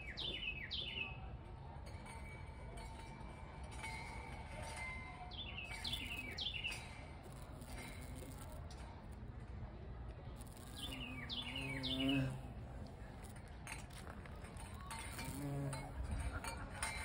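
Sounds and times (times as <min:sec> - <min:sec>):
songbird singing: 0:00.0 - 0:01.3, 0:05.3 - 0:07.4, 0:10.4 - 0:12.5.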